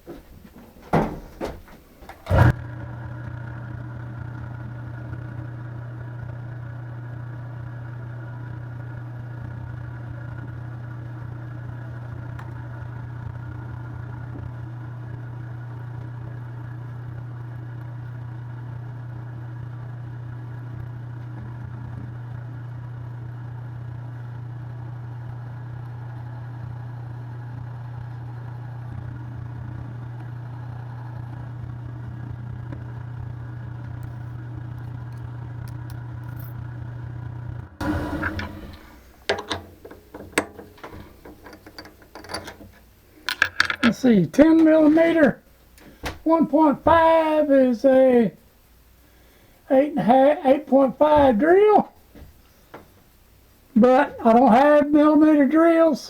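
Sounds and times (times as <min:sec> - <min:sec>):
spindle motor humming: 0:00.0 - 0:15.9, 0:28.6 - 0:48.4
loud switch clunk: 0:37.8 - 0:44.0.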